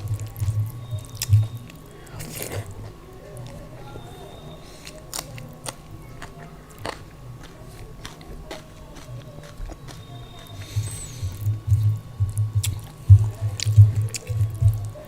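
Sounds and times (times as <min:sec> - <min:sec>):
chewing food: 0:00.0 - 0:15.0
crisp bites: 0:00.1 - 0:03.6, 0:04.9 - 0:10.8.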